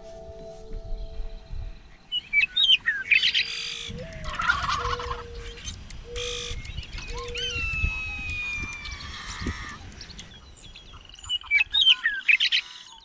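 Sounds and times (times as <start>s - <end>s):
burbling bird call: 3.0s - 9.8s.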